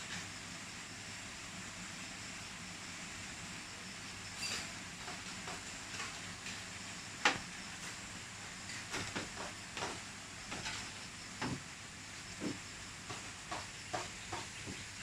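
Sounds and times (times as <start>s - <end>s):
steady hiss: 0.0s - 15.0s
sharp ticks and taps: 12.4s - 14.8s.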